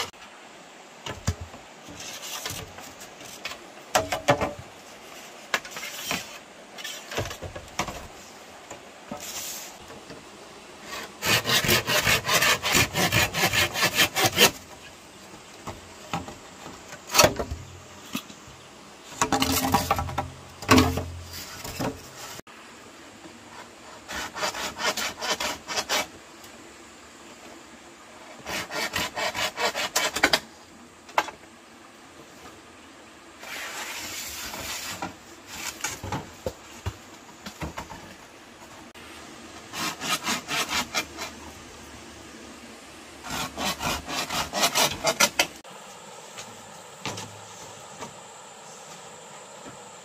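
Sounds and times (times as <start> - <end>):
rasping strokes on wood: 10.8 - 14.6, 23.6 - 26.1, 28.4 - 30.4, 39.6 - 41.5, 43.2 - 45.6.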